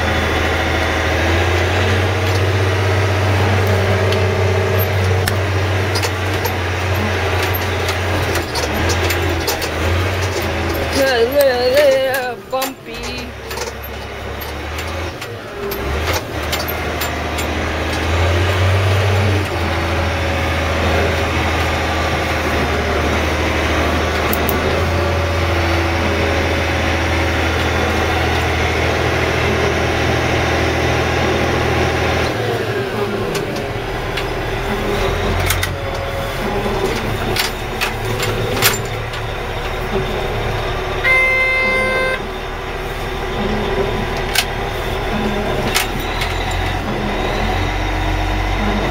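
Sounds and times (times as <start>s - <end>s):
knocks and rattles over bumps: 0.0s - 48.9s
wheel loader diesel engine: 0.0s - 48.9s
beep: 41.0s - 42.4s.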